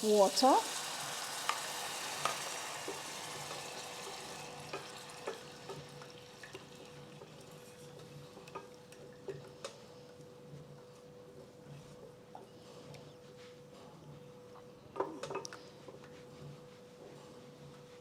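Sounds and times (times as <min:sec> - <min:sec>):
water sizzling in hot oil: 0:00.0 - 0:08.7.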